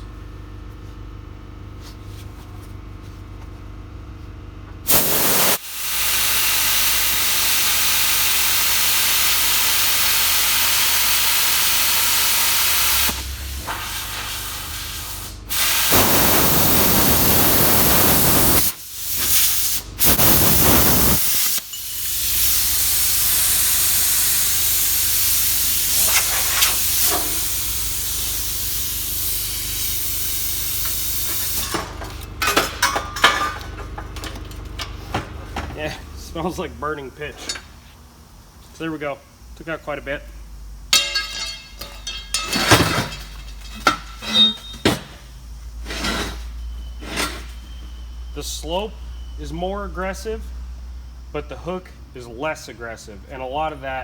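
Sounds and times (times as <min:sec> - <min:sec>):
plasma cutter hissing: 0:04.9 - 0:31.7.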